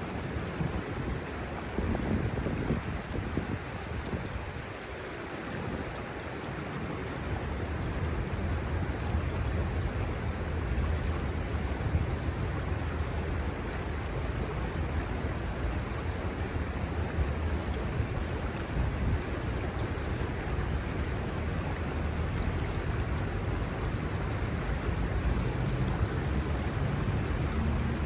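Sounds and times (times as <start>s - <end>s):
river rushing: 0.0s - 28.0s
wind rumble on microphone: 0.0s - 28.0s.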